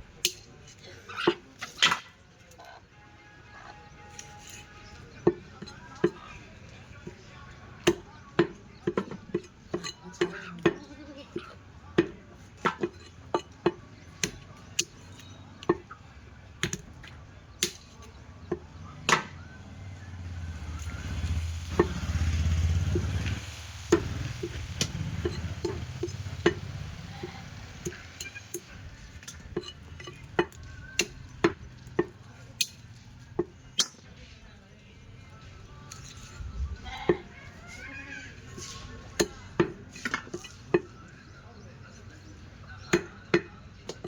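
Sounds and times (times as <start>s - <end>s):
blade chopping meat and bone: 7.8s - 10.8s, 11.4s - 16.0s, 16.6s - 19.4s, 23.9s - 34.0s.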